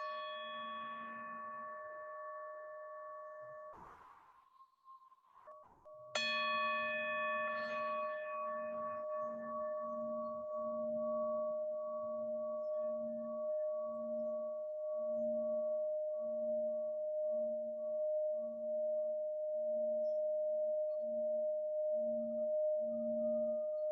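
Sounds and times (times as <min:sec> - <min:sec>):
sound bowl ringing: 0:00.0 - 0:03.8, 0:05.9 - 0:19.2.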